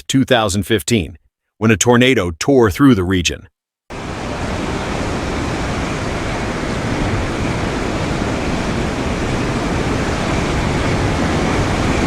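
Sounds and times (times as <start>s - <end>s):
storm wind on microphone: 3.9s - 12.0s.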